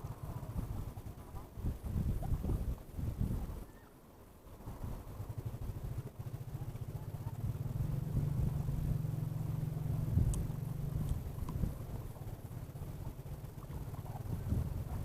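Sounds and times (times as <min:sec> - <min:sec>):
small engine running: 0:05.2 - 0:15.0.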